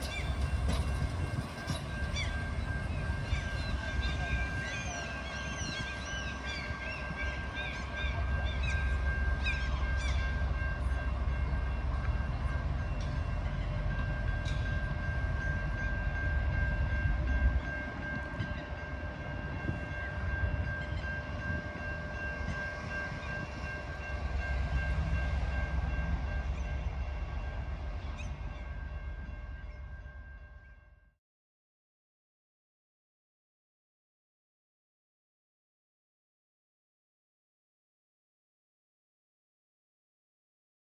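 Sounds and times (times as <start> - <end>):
train diesel rumble: 0.0 - 31.0.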